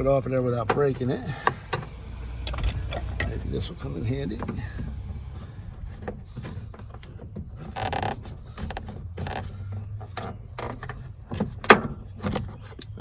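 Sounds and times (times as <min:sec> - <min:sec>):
tool scraping plastic: 0:04.7 - 0:12.8.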